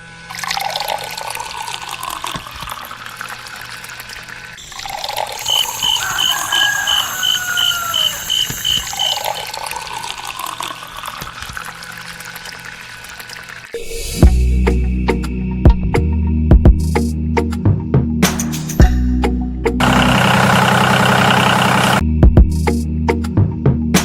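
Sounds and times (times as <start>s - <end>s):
water running and splashing: 0.3s - 13.8s.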